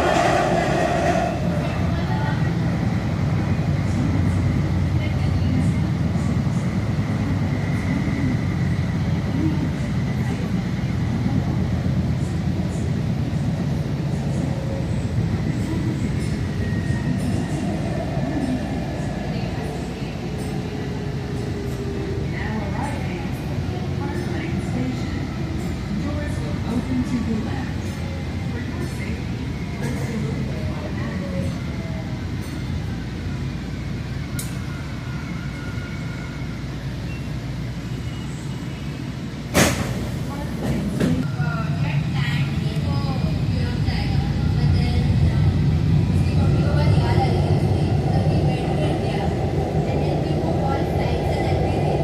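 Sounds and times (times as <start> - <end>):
train wheels rumbling on track: 0.0 - 52.0.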